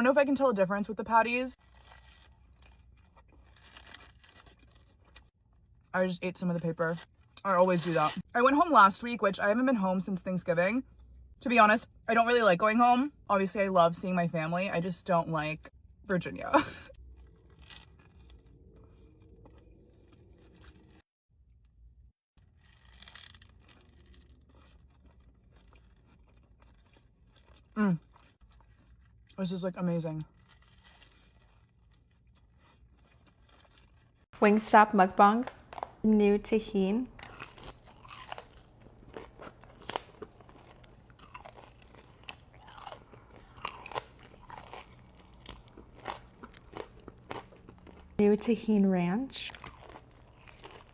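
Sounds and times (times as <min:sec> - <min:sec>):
person chewing crunchy food: 0:01.6 - 0:05.9, 0:17.0 - 0:21.0, 0:22.4 - 0:29.3, 0:30.3 - 0:34.3, 0:35.4 - 0:36.0, 0:37.1 - 0:48.2, 0:49.5 - 0:50.9
quiet chewing: 0:37.2 - 0:48.2, 0:49.4 - 0:50.9.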